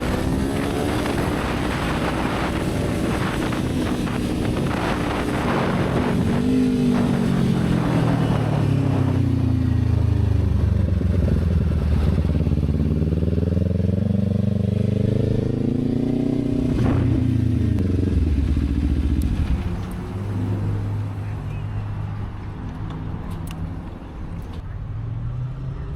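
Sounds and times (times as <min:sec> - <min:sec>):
motorcycle engine running: 0:00.0 - 0:20.3.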